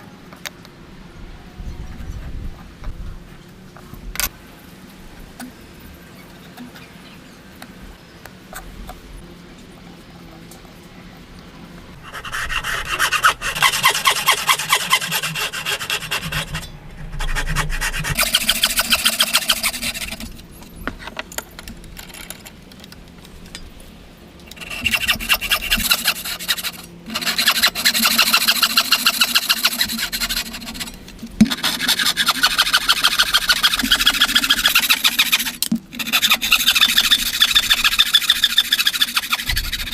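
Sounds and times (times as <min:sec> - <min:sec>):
hand tool scraping wood: 0:12.0 - 0:20.4, 0:24.5 - 0:39.9.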